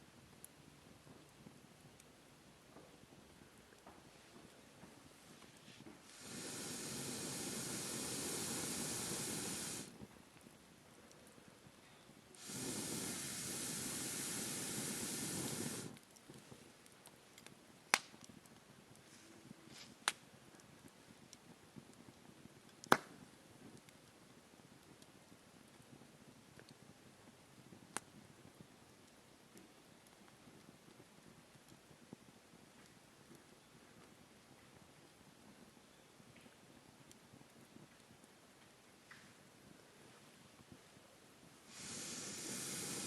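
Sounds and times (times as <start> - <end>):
burning wood popping: 2.8 - 24.2, 41.7 - 43.0
air blown into fire: 5.8 - 10.1, 12.3 - 16.1, 41.6 - 43.0.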